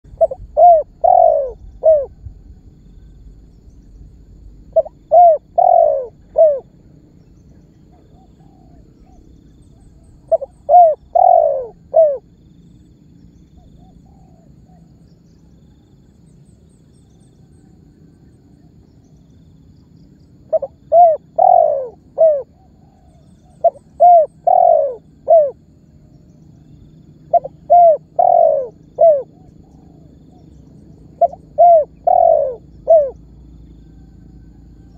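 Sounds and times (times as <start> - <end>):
dove cooing: 0.0 - 2.4, 4.7 - 6.8, 7.9 - 12.3, 13.6 - 14.8, 20.5 - 25.8, 27.2 - 34.9.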